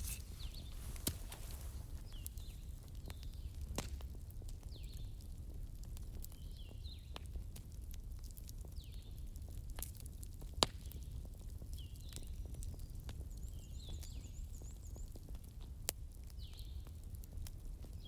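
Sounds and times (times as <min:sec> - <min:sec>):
sharp pops: 0:00.0 - 0:02.0
fireplace crackling: 0:00.0 - 0:02.6.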